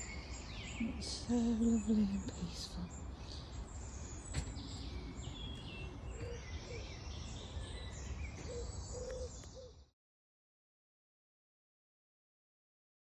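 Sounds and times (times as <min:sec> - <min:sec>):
low outdoor rumble: 0:00.0 - 0:08.5
birds singing and chirping: 0:00.0 - 0:09.9.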